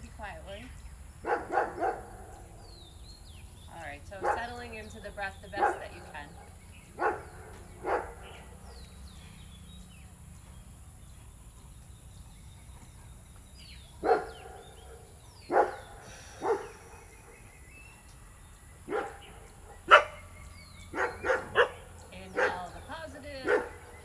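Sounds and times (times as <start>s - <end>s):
dog barking: 1.2s - 2.7s, 4.2s - 4.7s, 5.6s - 8.9s, 13.9s - 17.5s, 18.8s - 24.0s.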